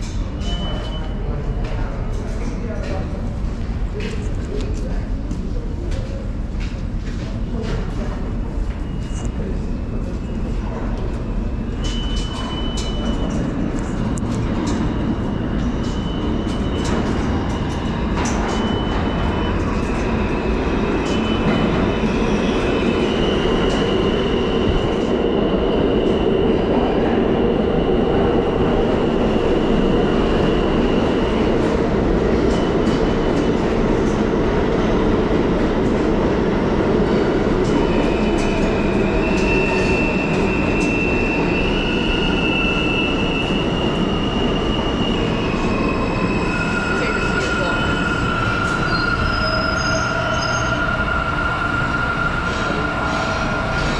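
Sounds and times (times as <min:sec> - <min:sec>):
subway train rumble: 0:00.0 - 0:53.9
high-pitched wheel squeal: 0:44.9 - 0:50.9.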